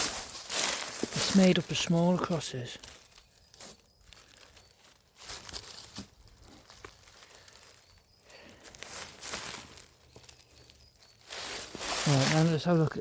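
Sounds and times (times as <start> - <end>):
footsteps crunching leaf litter: 0.0 - 13.0.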